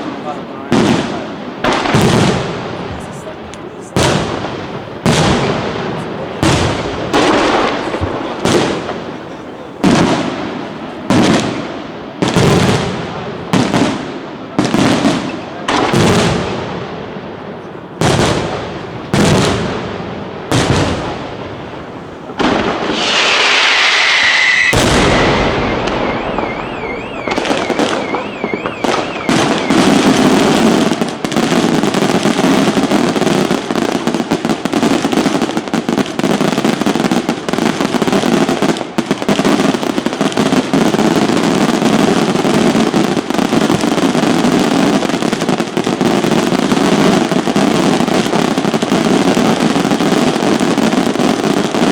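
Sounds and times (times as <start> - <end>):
barrage of bangs and crackling: 0.0 - 16.9, 18.0 - 51.9
firework shell bursts booming: 22.4 - 30.7
falling firework whistle: 22.7 - 31.0
warbling whistling tone: 23.7 - 30.4.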